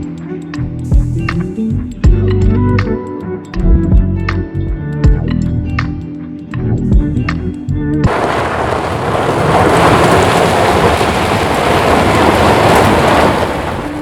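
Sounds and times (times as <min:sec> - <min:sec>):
music: 0:00.0 - 0:08.1
loud rushing noise: 0:08.1 - 0:14.0.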